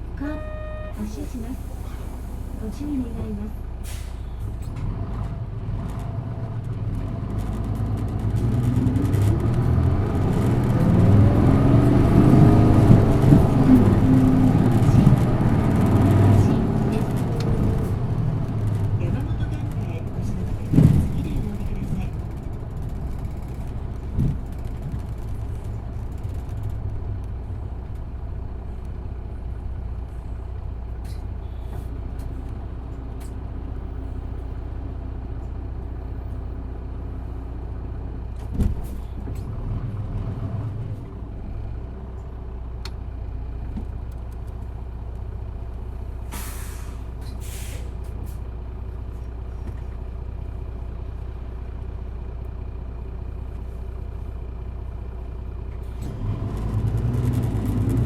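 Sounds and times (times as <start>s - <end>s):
bus diesel engine running: 0.0s - 58.0s
air brake hissing: 1.0s - 2.6s, 3.8s - 4.4s, 46.2s - 48.4s.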